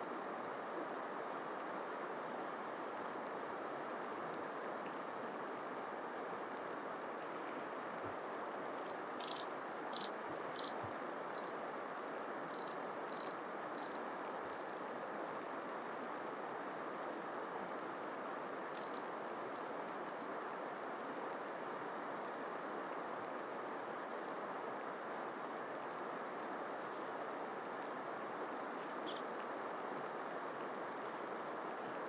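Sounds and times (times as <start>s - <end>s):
background hiss: 0.0s - 32.0s
bird call notes: 8.7s - 10.8s, 12.5s - 15.5s, 18.7s - 19.2s.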